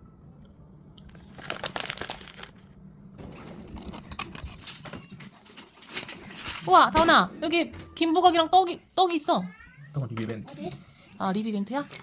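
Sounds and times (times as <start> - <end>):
plastic food wrapper crinkling: 1.1 - 2.7.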